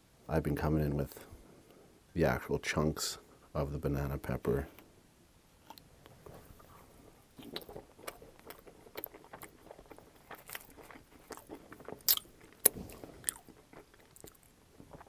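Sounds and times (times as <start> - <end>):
wet mouth clicks and smacks: 5.6 - 5.9, 7.4 - 15.0
person chewing food: 5.6 - 15.0.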